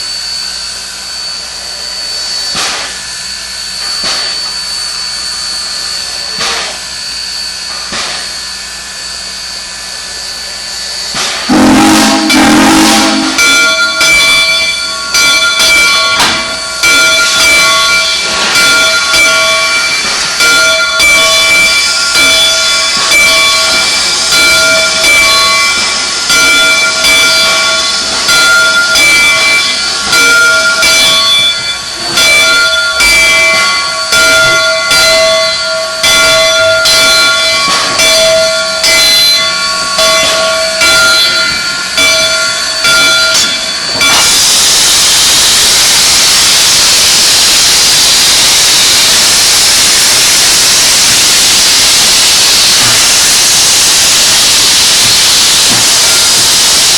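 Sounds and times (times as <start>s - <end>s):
locomotive bell ringing: 7.1s - 46.7s
loud hiss of escaping steam: 10.0s - 32.1s, 35.4s - 56.9s.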